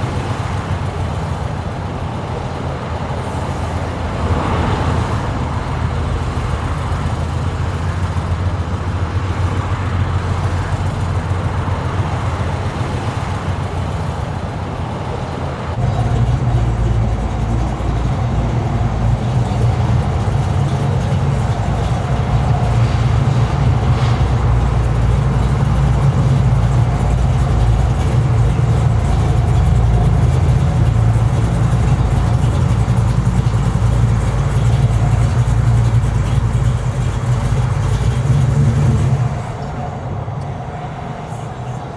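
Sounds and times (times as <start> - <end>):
car engine running: 0.0 - 41.9.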